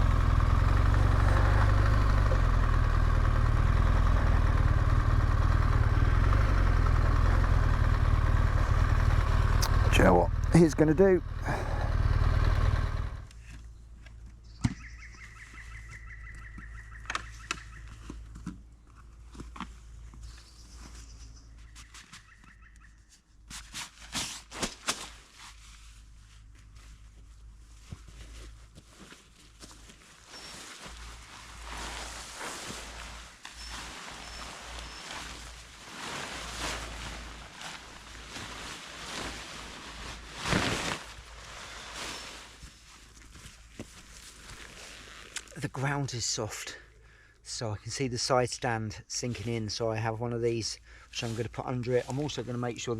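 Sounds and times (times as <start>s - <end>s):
bird call with pulsed notes: 14.4s - 18.0s, 20.3s - 23.1s.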